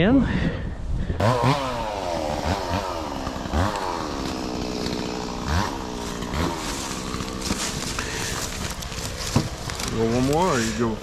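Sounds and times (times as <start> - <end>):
small gasoline engine revving: 1.2 - 8.7.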